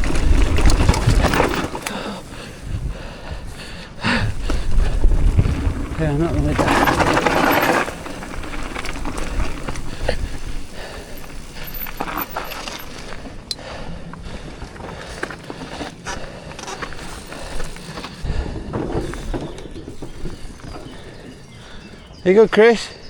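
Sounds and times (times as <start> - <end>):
wind on microphone: 0.0 - 12.2
bike chain and frame rattling: 0.0 - 22.7
bike tyres rolling over dirt: 0.0 - 23.0.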